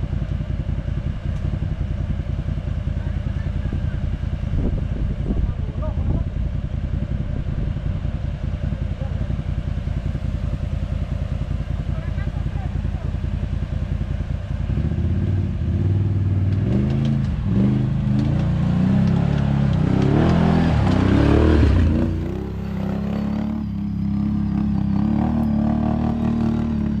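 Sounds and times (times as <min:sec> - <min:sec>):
vehicle engine revving: 0:00.0 - 0:27.0.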